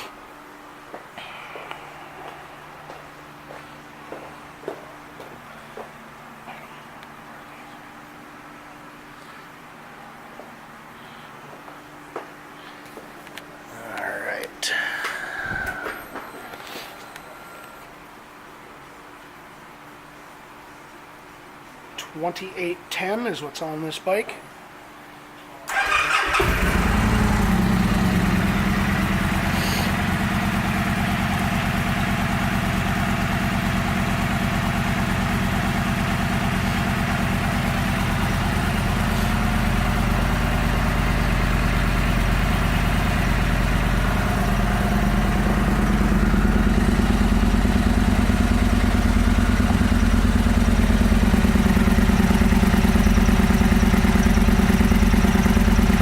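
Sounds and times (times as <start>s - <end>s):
motorcycle engine starting and idling: 25.7s - 56.0s.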